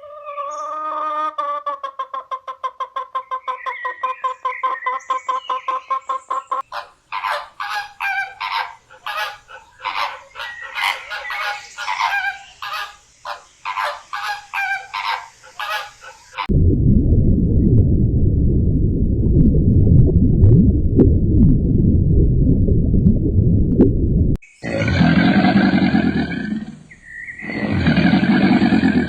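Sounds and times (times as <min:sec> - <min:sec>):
fowl stuttering call: 0:00.0 - 0:16.5
fowl harsh honking: 0:06.6 - 0:16.5.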